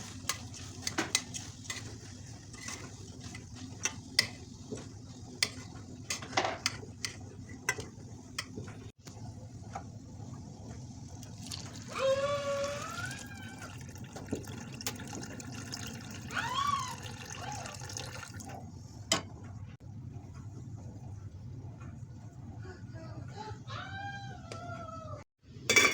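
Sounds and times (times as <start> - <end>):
water running from a tap: 11.2 - 18.6.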